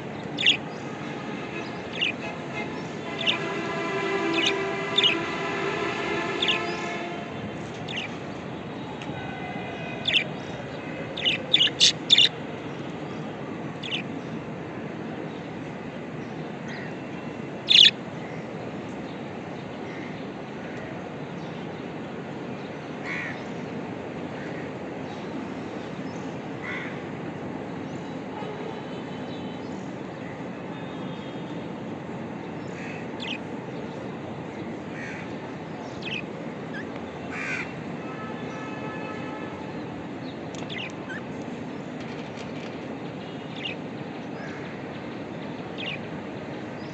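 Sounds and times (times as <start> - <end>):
budgerigars chirping and squawking: 0.4 - 0.6, 1.9 - 2.3, 11.2 - 12.3, 13.8 - 14.0, 17.7 - 17.9.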